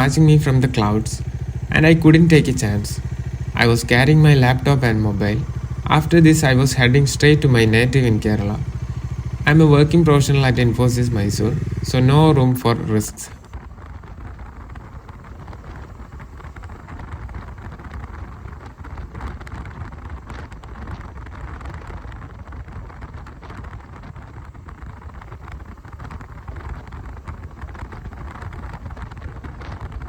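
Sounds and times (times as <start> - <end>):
low rumble: 0.0 - 13.4.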